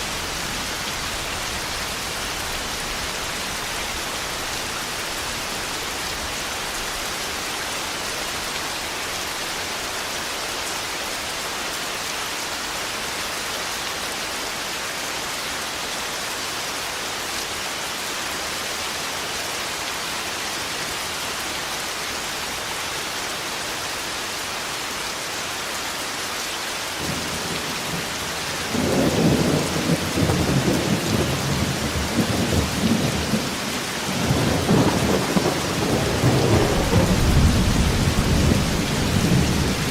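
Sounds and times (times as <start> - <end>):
heavy rain falling: 0.0 - 39.9
thunder rumbling: 34.2 - 39.9.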